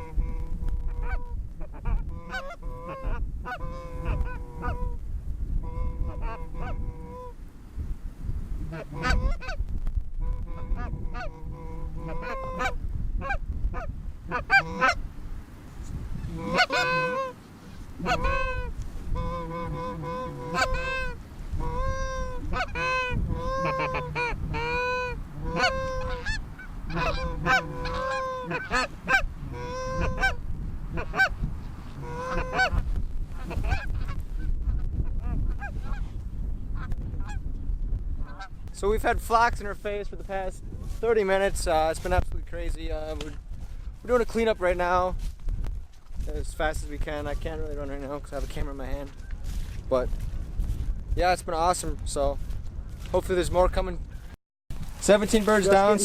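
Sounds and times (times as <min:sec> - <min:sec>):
geese honking: 0:00.0 - 0:05.0, 0:05.6 - 0:07.4, 0:08.6 - 0:09.6, 0:10.2 - 0:15.0, 0:16.2 - 0:34.2, 0:55.0 - 0:56.0.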